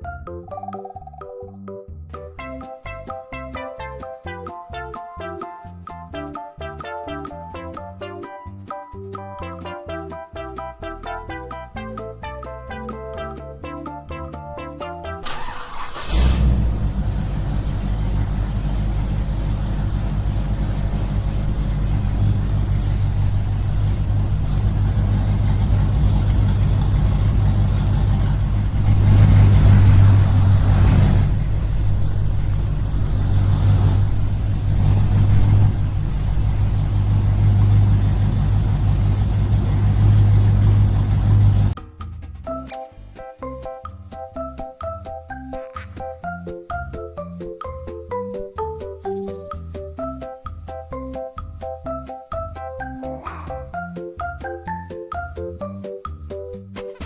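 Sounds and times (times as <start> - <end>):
small engine chugging: 15.2 - 41.8.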